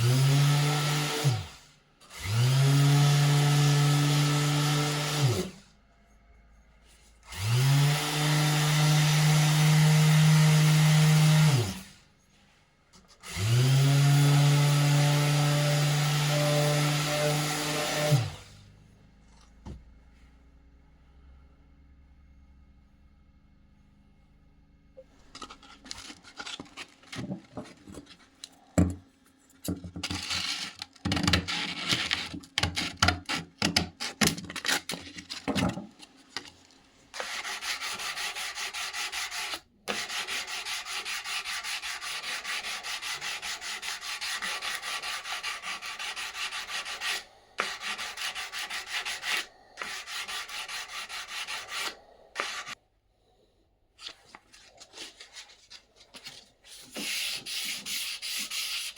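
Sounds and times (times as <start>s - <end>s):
abrasive tool scraping wood: 30.0s - 52.8s.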